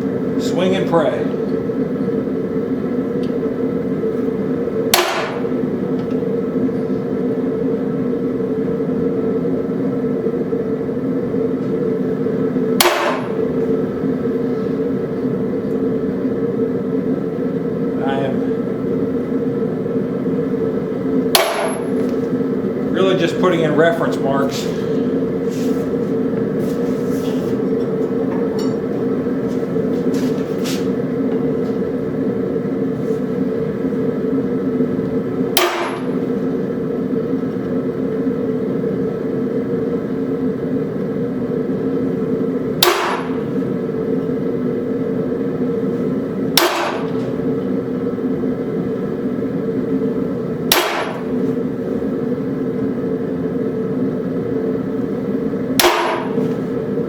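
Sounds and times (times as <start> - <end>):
steady hum: 0.0 - 57.0
hammer striking metal punch: 4.9 - 5.6, 12.8 - 13.5, 21.3 - 22.0, 35.5 - 36.2, 42.8 - 43.5, 46.6 - 47.4, 50.7 - 51.4, 55.8 - 56.6.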